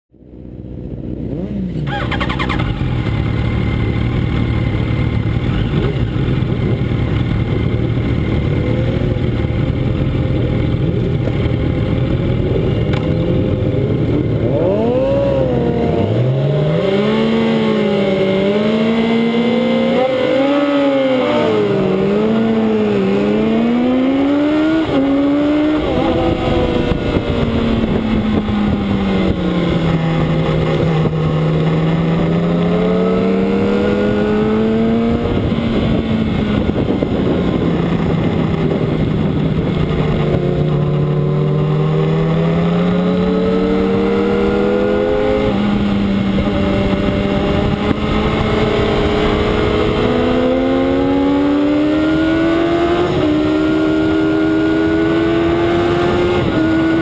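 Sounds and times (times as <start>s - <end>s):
motorcycle engine revving: 0.2s - 57.0s
motorcycle engine idling with blips: 1.7s - 14.8s.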